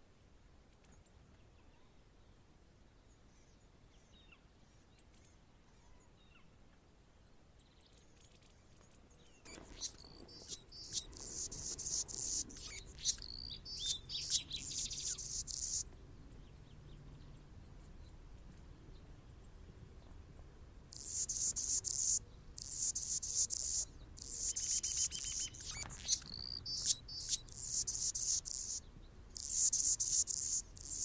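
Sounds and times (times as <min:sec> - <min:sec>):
hummingbird singing high squeaky notes: 0:09.5 - 0:15.8, 0:21.0 - 0:28.8, 0:29.4 - 0:31.0.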